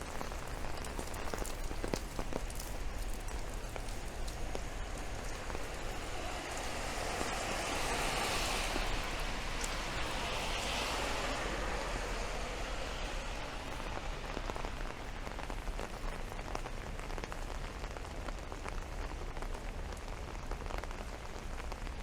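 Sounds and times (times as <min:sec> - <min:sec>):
tyres hissing on wet road: 0:00.0 - 0:17.1
rain pattering: 0:00.0 - 0:22.0.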